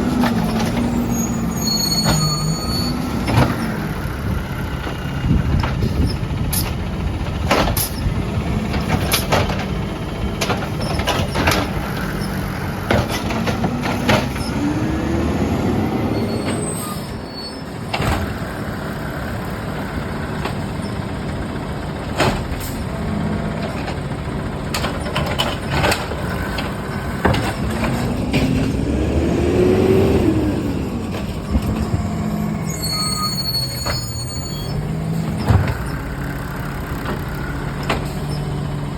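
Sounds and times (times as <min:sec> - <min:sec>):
diesel truck engine revving: 0:00.0 - 0:38.9
sharp knocks and clanks: 0:04.9 - 0:08.1, 0:08.7 - 0:14.7, 0:22.1 - 0:29.0, 0:35.2 - 0:38.6.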